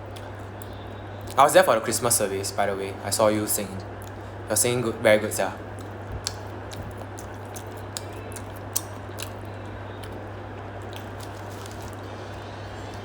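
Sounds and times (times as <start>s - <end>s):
steady low hum: 0.0s - 13.0s
person chewing food: 5.6s - 13.0s.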